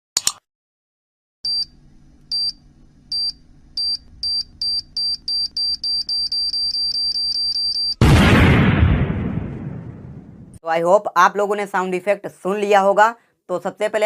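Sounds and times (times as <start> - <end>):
low hum: 1.5 - 5.9
high-pitched countdown beeps: 3.2 - 8.0.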